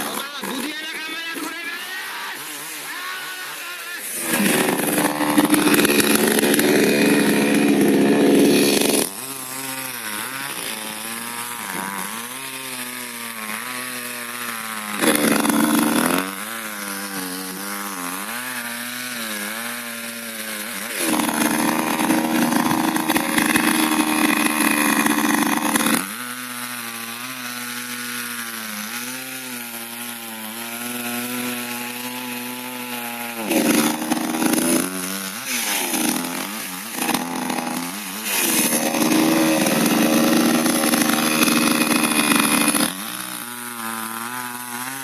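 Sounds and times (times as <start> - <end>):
chainsaw revving and idling: 0.0 - 45.0.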